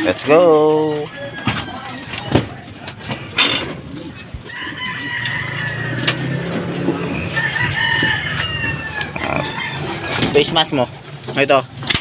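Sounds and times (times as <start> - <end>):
rooster crowing: 0.9 - 2.3, 4.4 - 10.4.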